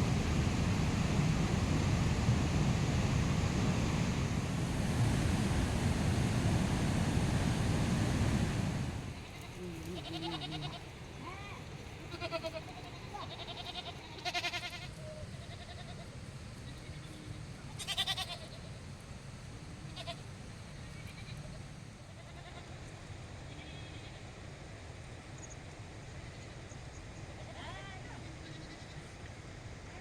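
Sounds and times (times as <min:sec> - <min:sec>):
sheep and goats bleating: 0:09.2 - 0:10.9, 0:12.0 - 0:16.0, 0:17.8 - 0:18.7, 0:22.1 - 0:22.7.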